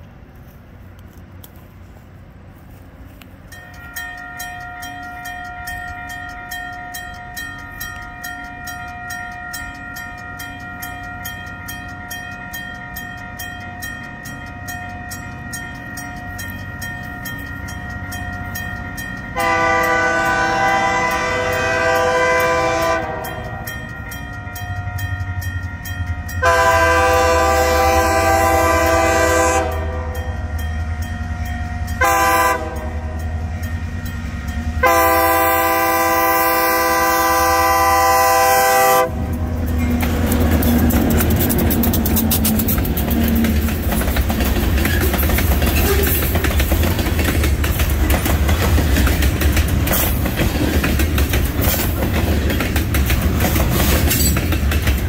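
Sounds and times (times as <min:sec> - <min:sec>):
wheels clicking over rail joints: 0:00.0 - 0:55.0
locomotive horn: 0:19.4 - 0:23.7, 0:26.4 - 0:30.4, 0:31.9 - 0:33.3, 0:34.8 - 0:40.8.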